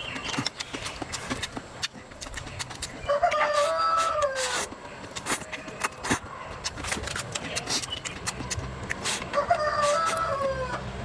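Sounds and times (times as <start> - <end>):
rooster crowing: 3.1 - 4.5, 9.3 - 10.8.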